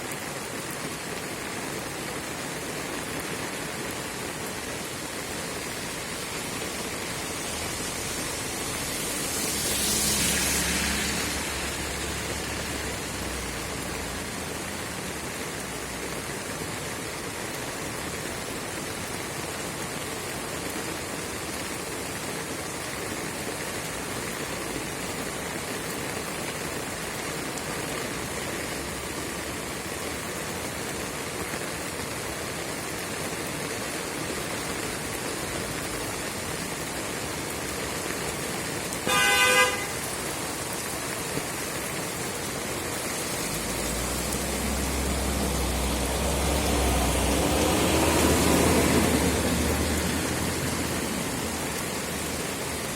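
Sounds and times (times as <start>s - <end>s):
rain hissing: 0.0s - 52.9s
car horn toot: 39.1s - 40.0s
vehicle engine rumble approaching: 43.0s - 52.9s.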